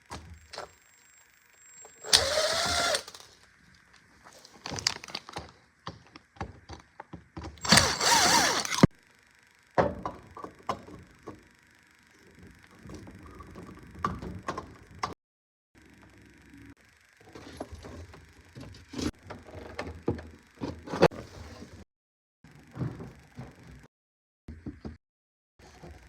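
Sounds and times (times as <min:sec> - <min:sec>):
knocks and clicks of hands-on work: 0:05.3 - 0:08.9, 0:09.8 - 0:11.5, 0:12.4 - 0:15.2.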